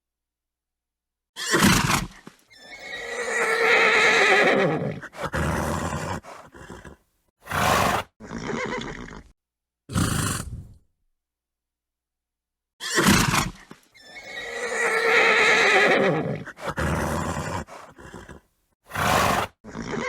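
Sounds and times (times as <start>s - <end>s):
horse neighing: 1.4s - 9.3s, 12.8s - 20.0s
horse snorting: 1.6s - 9.3s, 9.9s - 10.8s, 13.0s - 20.0s.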